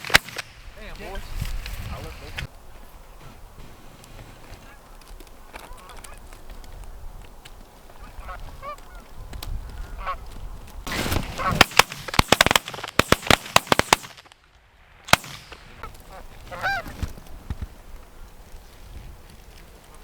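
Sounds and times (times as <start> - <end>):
shotgun shots: 0.0 - 0.6, 10.9 - 14.4, 15.1 - 15.9
geese honking: 8.0 - 9.1, 9.9 - 10.2, 11.4 - 11.6, 15.7 - 17.0.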